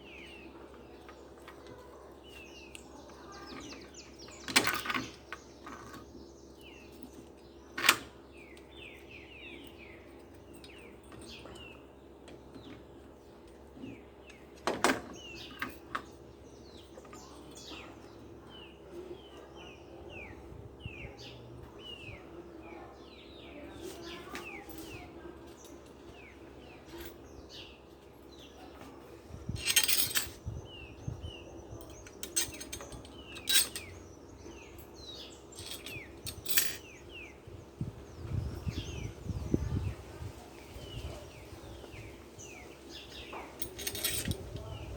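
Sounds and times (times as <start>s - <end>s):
birds chirping: 0.0s - 44.9s
metallic clinks and knocks: 29.5s - 30.4s, 31.8s - 37.0s, 43.2s - 44.4s.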